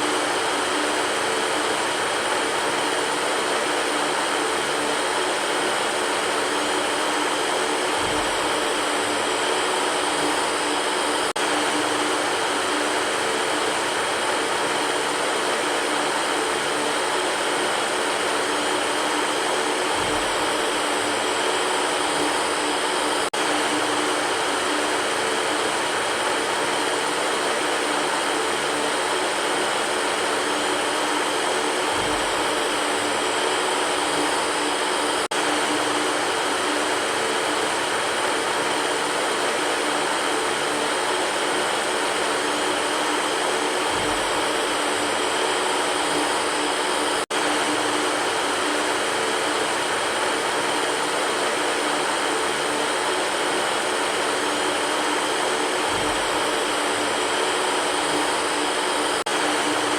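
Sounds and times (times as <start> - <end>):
electric fan running: 0.0 - 59.9.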